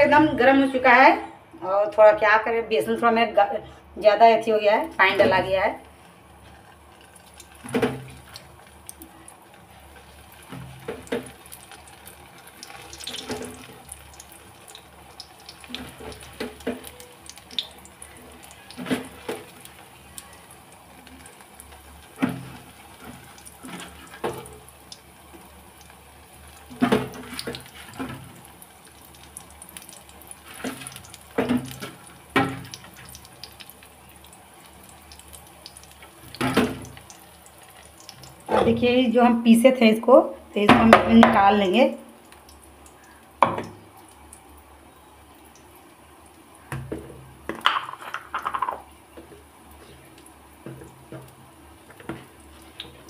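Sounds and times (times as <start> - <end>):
batter frying in hot oil: 2.1 - 53.0
batter dropping into oil sizzle: 7.0 - 20.3, 21.1 - 38.7, 46.7 - 49.0.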